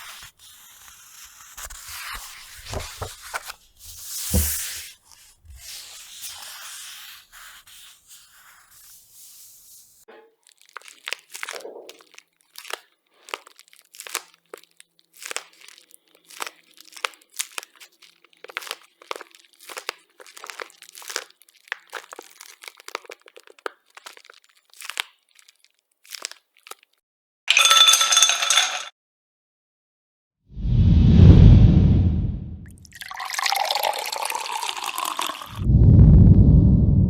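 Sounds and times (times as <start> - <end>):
crisp crunching and crackling: 10.4 - 27.0.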